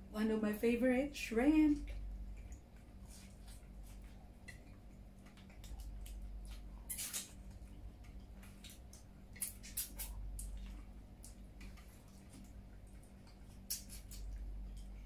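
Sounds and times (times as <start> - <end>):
faint steady hum: 0.0 - 15.0
wet chewing: 2.0 - 15.0
lip-smacking clicks: 4.4 - 15.0.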